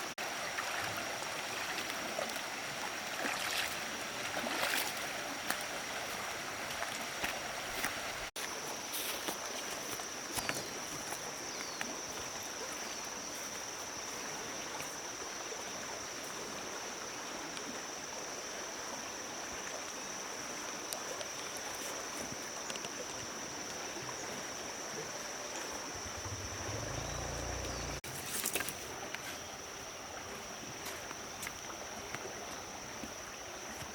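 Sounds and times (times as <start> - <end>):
rushing stream noise: 0.0 - 10.0, 25.6 - 28.8
low rumble: 25.9 - 28.0.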